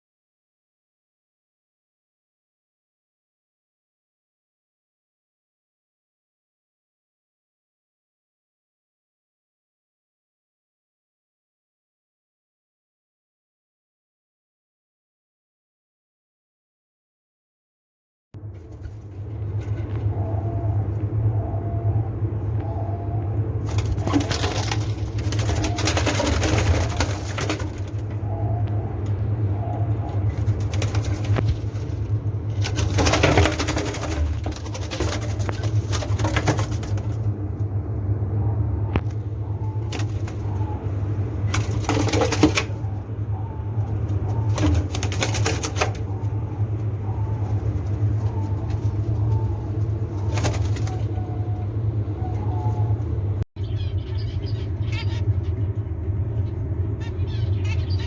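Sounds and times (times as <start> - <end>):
low hum: 18.4 - 58.0
doves cooing: 18.8 - 58.0.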